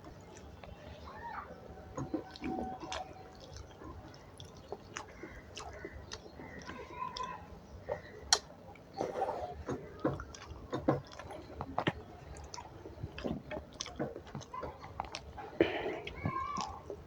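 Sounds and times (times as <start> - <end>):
person chewing food: 1.7 - 17.0.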